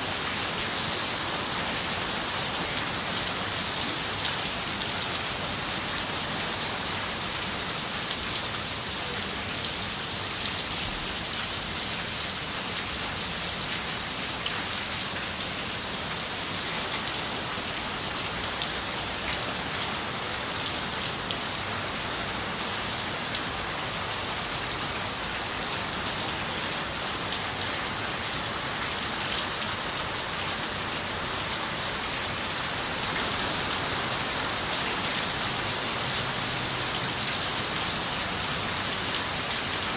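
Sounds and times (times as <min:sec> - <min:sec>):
rain on a window pane: 0:08.1 - 0:15.8.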